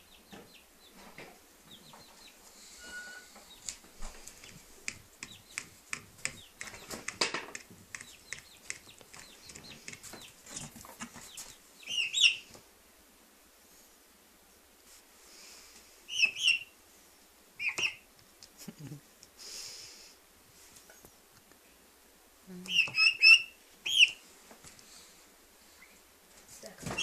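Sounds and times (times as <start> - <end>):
bird clicks and clucking calls: 4.4 - 12.4, 17.6 - 18.6.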